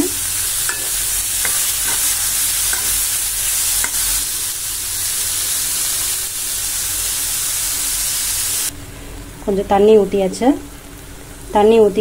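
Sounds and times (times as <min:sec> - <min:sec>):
carrots sizzling in hot oil: 0:00.0 - 0:08.7.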